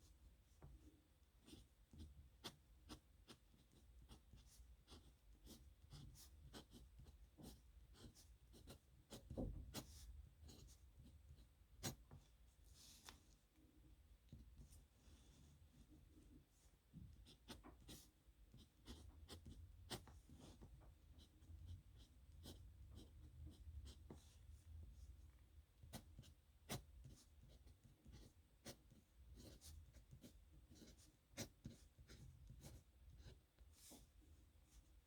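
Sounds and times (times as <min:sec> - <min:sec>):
pen scratching on paper: 0:01.4 - 0:12.2, 0:17.1 - 0:24.4, 0:25.8 - 0:34.1.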